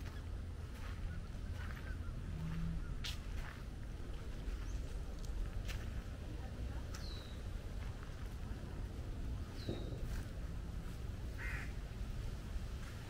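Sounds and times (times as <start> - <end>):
steady low rumble: 0.0 - 13.0
harsh bird squawk: 11.4 - 11.7.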